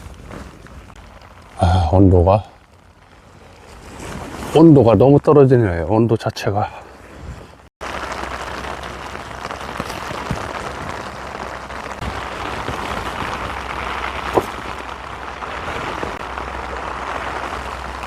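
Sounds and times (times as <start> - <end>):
raindrops ticking close by: 0.0 - 3.9, 7.8 - 18.0
heavy rain falling: 0.0 - 5.0, 7.8 - 18.0
wind rumbling on microphone: 6.8 - 18.0.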